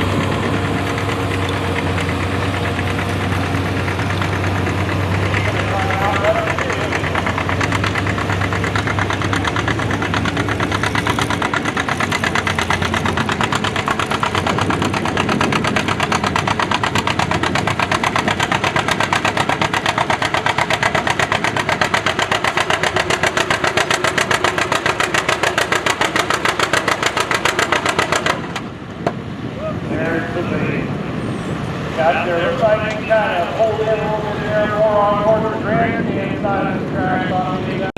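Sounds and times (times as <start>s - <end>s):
tractor engine running under load: 0.0s - 37.9s.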